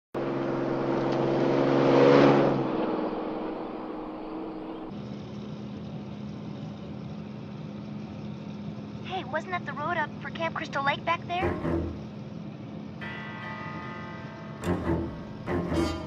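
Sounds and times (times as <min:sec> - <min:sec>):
car engine passing by: 0:00.2 - 0:04.9, 0:11.4 - 0:12.2
engine drone inside car cab: 0:00.2 - 0:16.0.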